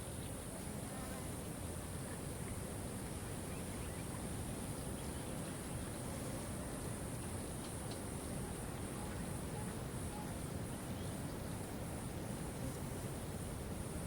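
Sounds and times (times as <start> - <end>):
faint bird chirps: 3.2 - 6.3, 8.8 - 11.5.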